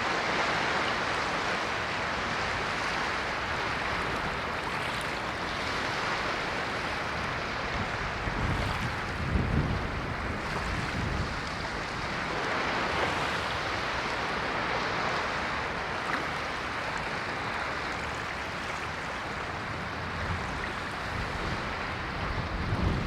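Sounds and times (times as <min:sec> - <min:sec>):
ocean waves washing ashore: 0:00.0 - 0:23.0.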